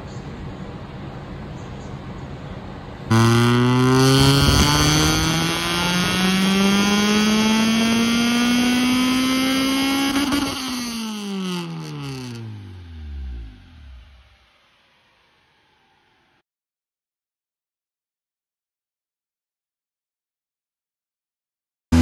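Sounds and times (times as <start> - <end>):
car engine revving on dyno: 3.1 - 16.0.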